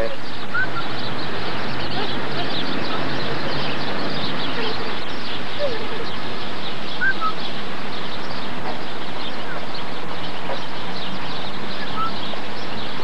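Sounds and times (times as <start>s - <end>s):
small birds chirping: 0.0s - 13.0s
steady rushing noise: 0.2s - 13.0s.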